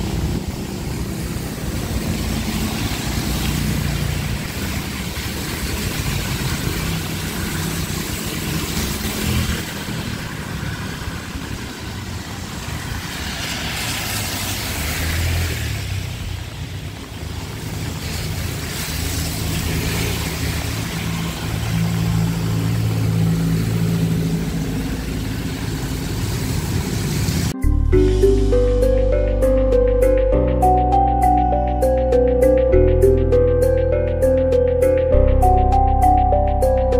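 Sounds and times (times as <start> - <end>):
heavy rain hiss: 0.0 - 28.9
tyres on wet road: 0.0 - 36.9
vehicle engine running: 15.7 - 36.9.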